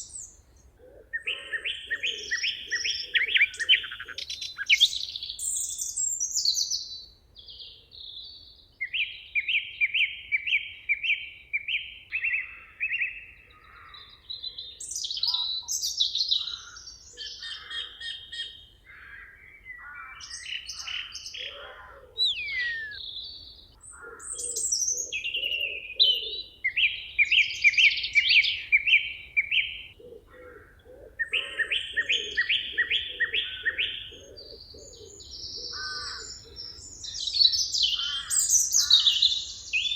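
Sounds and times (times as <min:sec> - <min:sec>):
lower bird calls: 0:00.0 - 0:07.7, 0:12.2 - 0:39.9
songbirds singing: 0:00.0 - 0:39.9.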